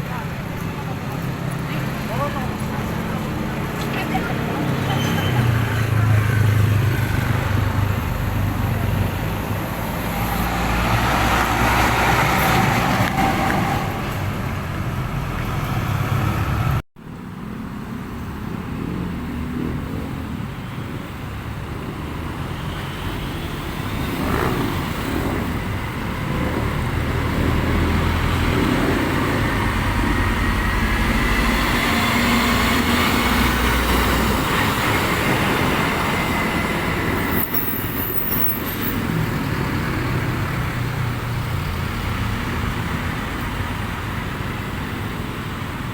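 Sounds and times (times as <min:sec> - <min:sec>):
trucks passing: 0:00.0 - 0:45.9.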